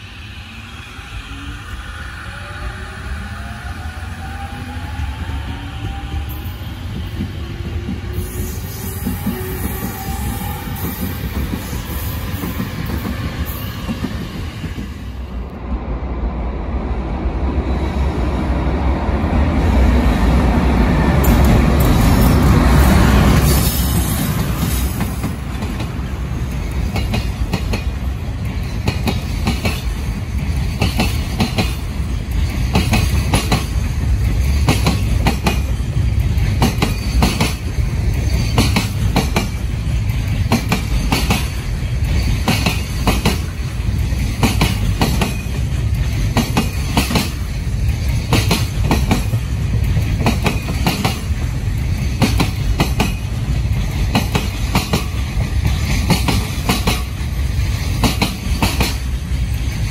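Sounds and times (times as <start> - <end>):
train wagons rumbling: 17.2 - 59.9.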